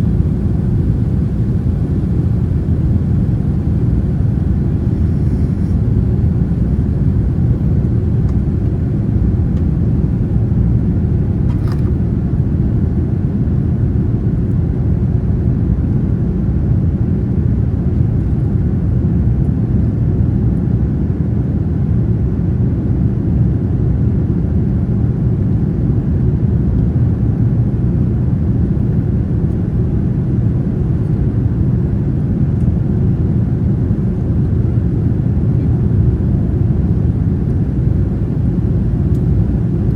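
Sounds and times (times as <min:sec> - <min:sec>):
jet engines rumbling: 0:00.0 - 0:14.4, 0:29.3 - 0:39.9.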